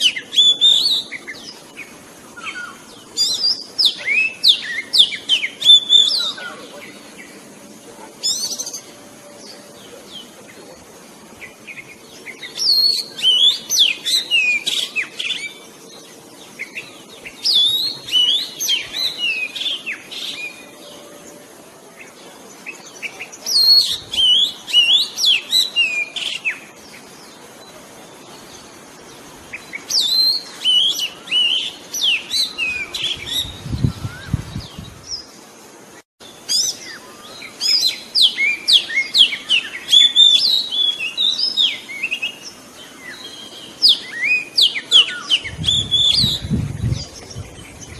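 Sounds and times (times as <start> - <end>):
bird whistling and chirping: 0.0 - 1.4, 2.4 - 6.6, 12.5 - 15.6, 17.4 - 20.7, 36.5 - 42.4, 43.1 - 47.1.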